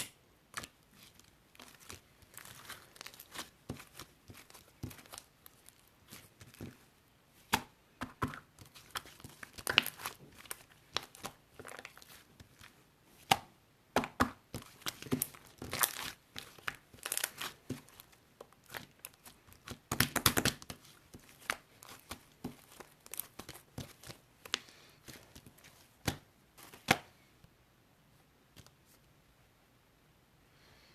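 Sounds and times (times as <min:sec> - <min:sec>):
crinkling and tearing by hand: 0:00.0 - 0:06.9, 0:08.5 - 0:12.8, 0:14.5 - 0:27.0.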